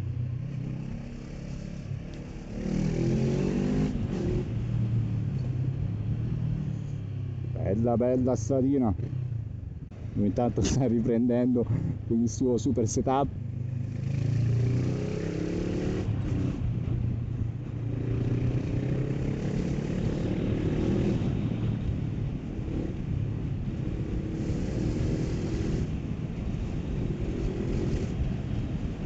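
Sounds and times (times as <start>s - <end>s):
motorcycle engine accelerating: 0.0s - 6.9s, 13.4s - 17.1s, 17.7s - 28.8s.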